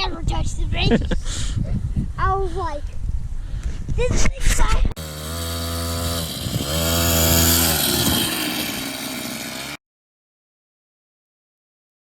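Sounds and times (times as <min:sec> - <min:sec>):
two-stroke engine revving high: 0:05.0 - 0:09.8.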